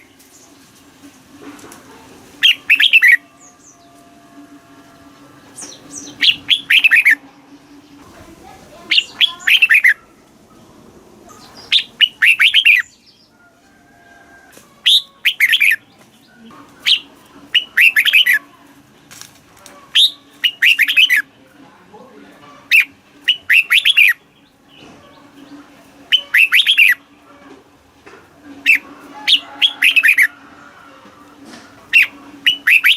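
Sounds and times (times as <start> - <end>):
bird singing: 2.4 - 10.2, 11.3 - 13.5, 14.8 - 18.4, 19.9 - 21.3, 22.6 - 27.3, 28.6 - 30.3, 31.9 - 32.9.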